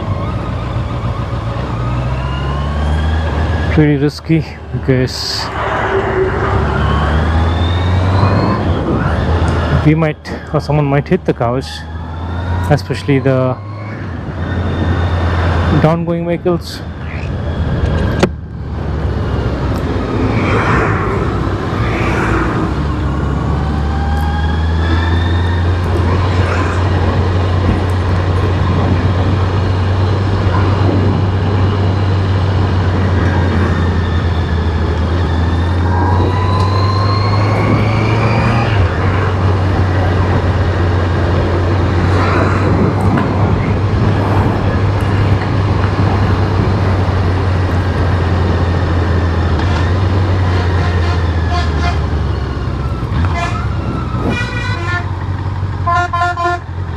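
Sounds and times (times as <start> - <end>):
constant rushing noise: 12.6 - 56.9.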